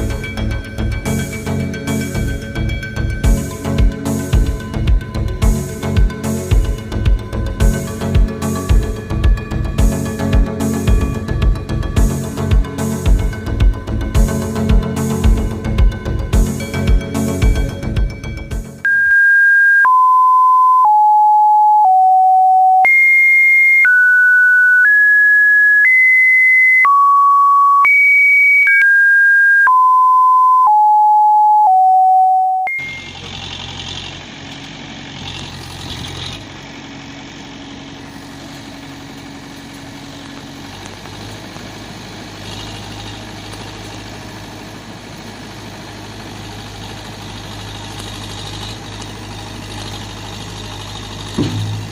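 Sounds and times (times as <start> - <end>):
vehicle engine idling: 0.0 - 18.8, 32.7 - 51.9
electronic beep tune: 18.8 - 33.2.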